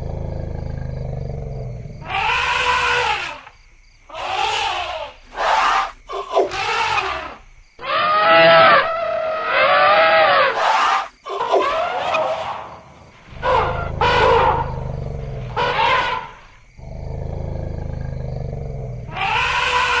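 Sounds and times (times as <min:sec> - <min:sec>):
elephant low rumble: 0:00.0 - 0:02.4, 0:13.0 - 0:19.5
elephants trumpeting: 0:02.0 - 0:03.5, 0:04.1 - 0:20.0.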